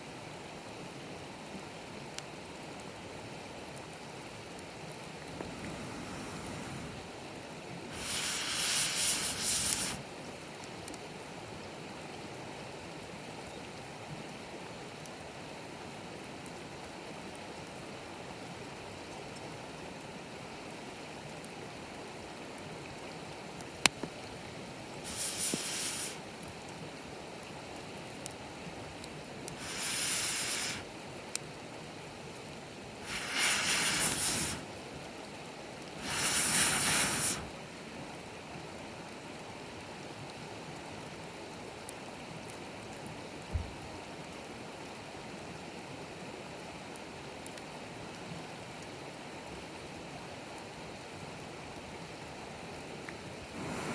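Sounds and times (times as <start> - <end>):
bonfire burning with low hiss: 0.1 - 53.9
fire crackle: 4.5 - 10.8, 23.7 - 26.8, 28.2 - 31.6, 32.2 - 35.1, 35.8 - 38.0, 53.0 - 53.9
air blown onto fire: 5.2 - 7.2, 7.9 - 10.0, 25.0 - 26.4, 29.5 - 30.9, 33.0 - 34.8, 36.0 - 37.6, 53.4 - 53.9.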